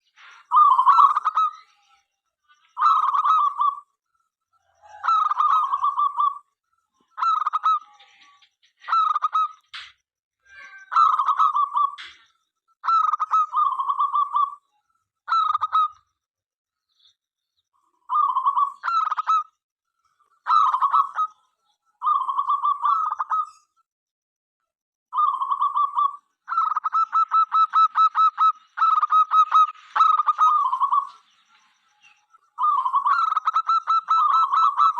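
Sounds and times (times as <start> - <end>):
dove cooing: 4.6 - 6.4, 10.9 - 12.2, 12.8 - 14.6, 18.1 - 19.4, 20.5 - 21.4, 22.0 - 23.6, 25.2 - 31.2, 32.6 - 34.9.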